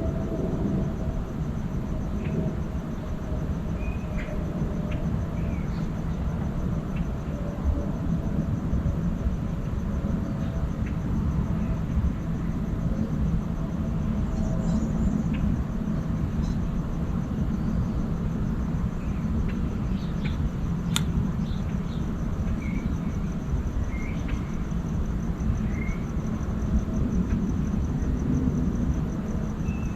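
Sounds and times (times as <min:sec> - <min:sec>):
steady low rumble: 0:00.0 - 0:29.9
sharp click: 0:20.9 - 0:21.1.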